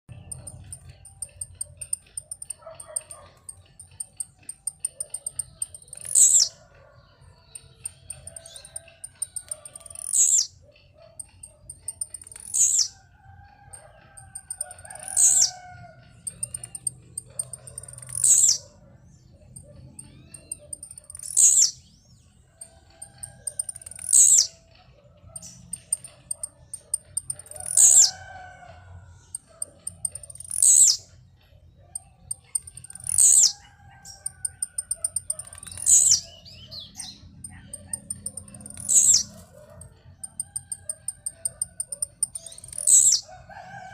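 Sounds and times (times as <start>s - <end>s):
faint rapid high ticking: 0.1s - 6.2s, 7.5s - 10.2s, 13.7s - 15.5s, 16.1s - 18.2s, 22.6s - 24.2s, 29.3s - 30.7s, 32.0s - 35.9s, 37.4s - 43.1s
other birds calling softly: 0.1s - 43.8s
bird song high downward sweep: 5.0s - 7.0s, 17.8s - 18.8s.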